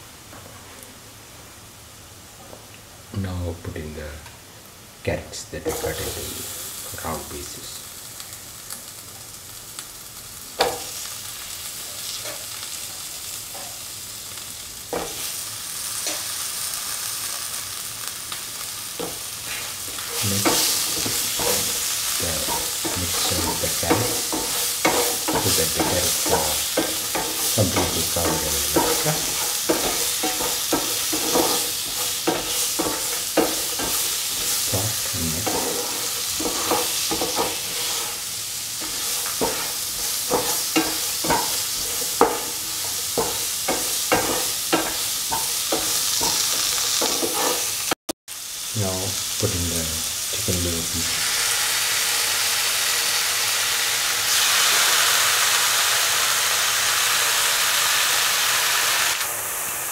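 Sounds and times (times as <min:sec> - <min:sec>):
vegetables sizzling in oil: 0:03.7 - 0:59.9
spatula scraping a pan: 0:19.0 - 0:47.9.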